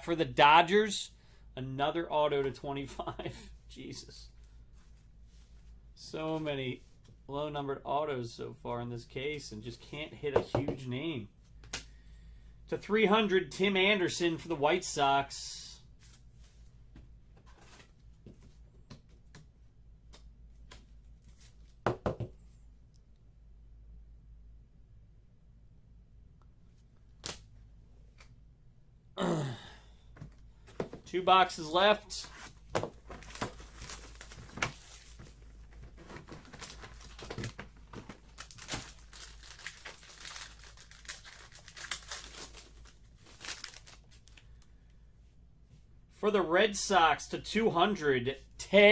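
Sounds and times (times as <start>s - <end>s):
knocks on a table: 21.9s - 22.4s
plastic wrapping crinkling and tearing: 33.1s - 44.7s.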